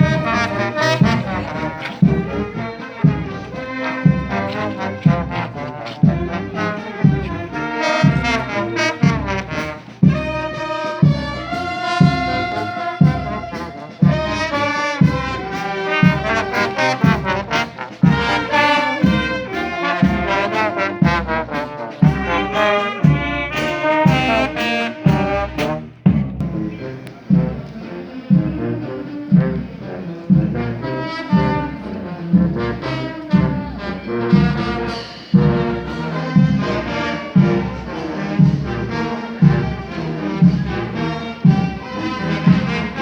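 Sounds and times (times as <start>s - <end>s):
bass drum strikes: 0.0s - 14.4s, 25.1s - 27.7s, 34.4s - 42.9s
brass band playing a march: 0.0s - 43.0s.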